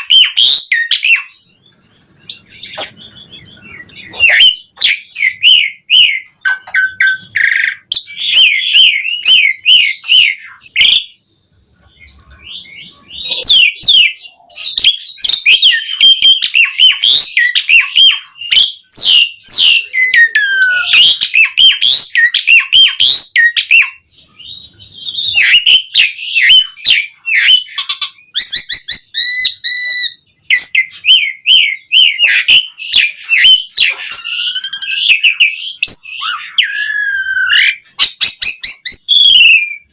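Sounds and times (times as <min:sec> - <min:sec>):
starling singing chirps and whistles: 0:00.0 - 0:39.9
buzzy repeated bird phrase: 0:19.7 - 0:21.2.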